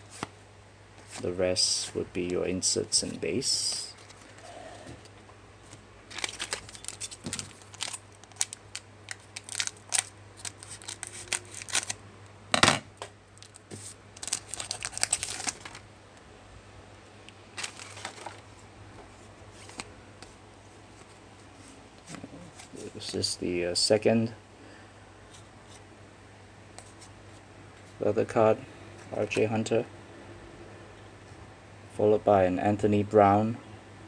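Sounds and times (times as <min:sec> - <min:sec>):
cards and foil wrapper crinkling: 0:06.1 - 0:12.0, 0:13.4 - 0:15.8, 0:17.5 - 0:18.5.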